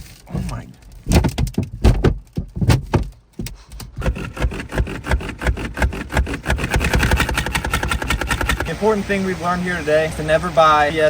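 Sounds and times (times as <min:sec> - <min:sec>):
knocks and clattering impacts: 0:00.3 - 0:08.7.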